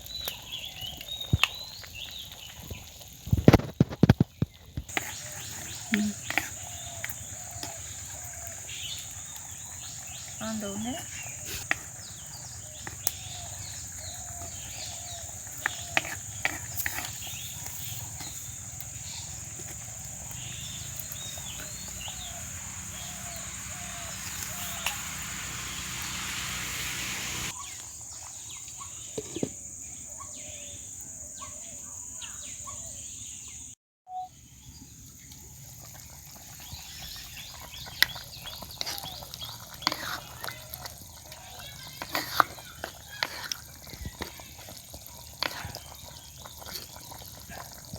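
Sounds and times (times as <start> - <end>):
chickens clucking: 15.5 - 27.6
high insect drone: 15.8 - 27.6.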